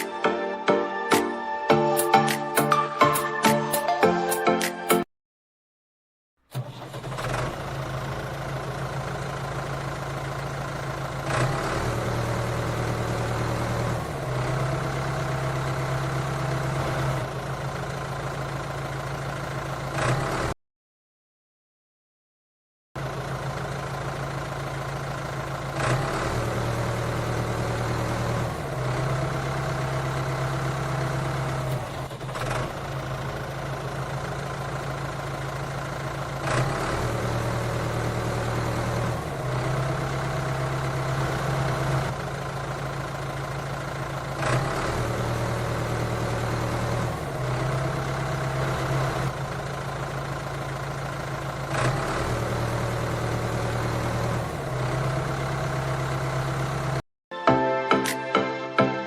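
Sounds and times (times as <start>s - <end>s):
tractor engine idling: 6.5s - 20.4s, 23.0s - 57.0s
short sharp click: 58.0s - 58.2s.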